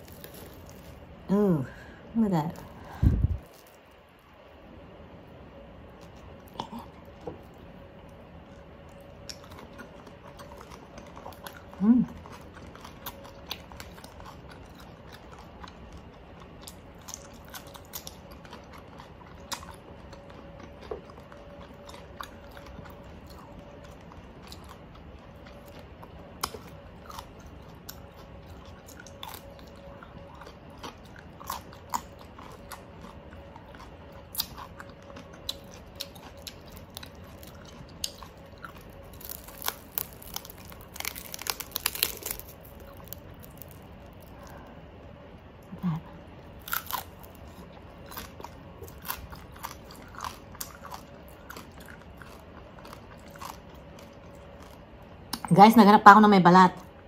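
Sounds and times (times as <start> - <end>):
chewing crispy pork: 0.0 - 4.8, 5.8 - 55.5
fingers tearing crisp skin: 39.1 - 44.2.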